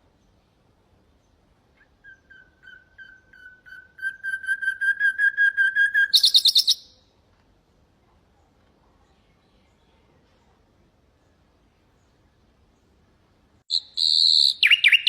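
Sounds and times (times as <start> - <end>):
nightingale singing: 1.1 - 7.1, 13.7 - 15.0.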